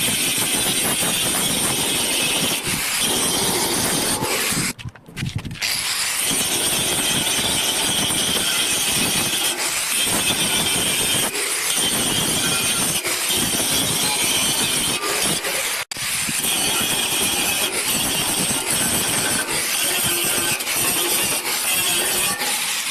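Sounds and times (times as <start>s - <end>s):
arc welding crackle and hiss: 5.8s - 22.9s.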